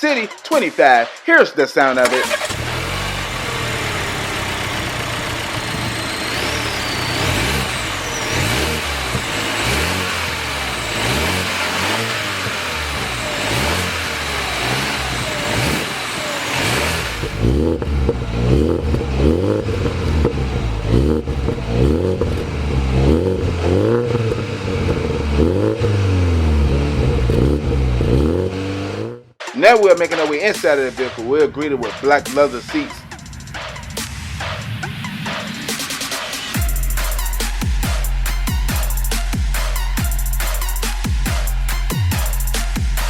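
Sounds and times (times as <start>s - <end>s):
car engine revving: 2.0s - 29.4s.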